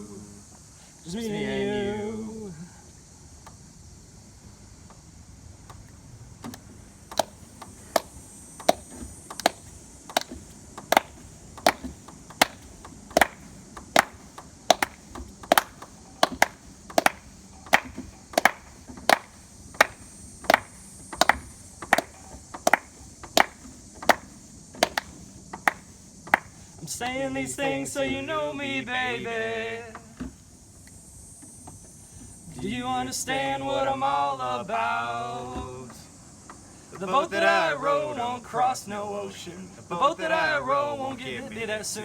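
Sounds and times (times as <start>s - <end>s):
sharp percussive taps: 7.1s - 26.6s.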